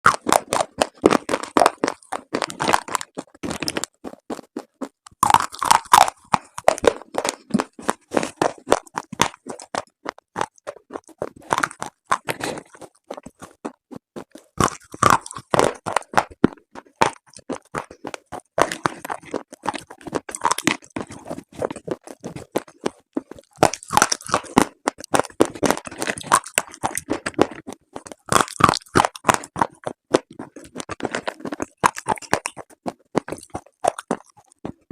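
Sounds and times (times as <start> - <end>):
slate pieces crunching: 0.0 - 34.9.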